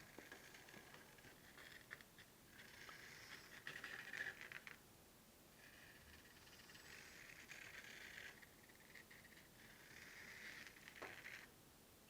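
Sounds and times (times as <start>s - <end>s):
drawing tool scratching on canvas: 0.0s - 4.8s, 5.6s - 11.5s.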